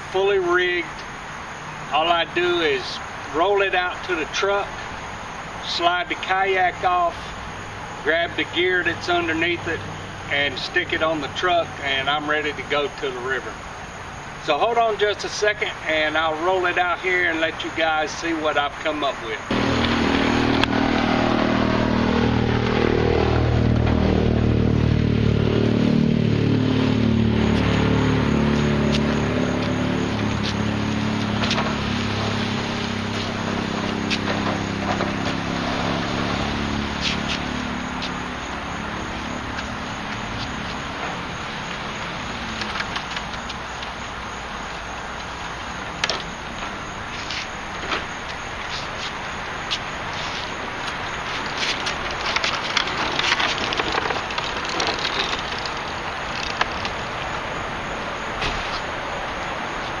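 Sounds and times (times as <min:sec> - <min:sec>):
motor hum: 0:19.5 - 0:44.1
cart wheels rattling over pavement: 0:28.4 - 1:00.0.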